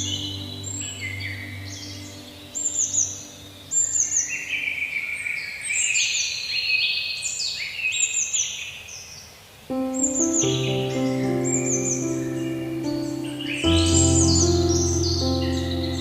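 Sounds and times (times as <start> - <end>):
songbirds singing: 0.0 - 16.0
held musical note: 9.7 - 16.0.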